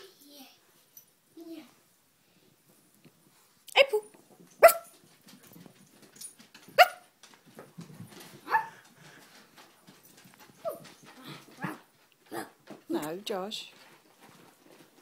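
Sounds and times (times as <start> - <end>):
dog barking: 4.6 - 4.9, 6.8 - 7.0, 8.5 - 8.8.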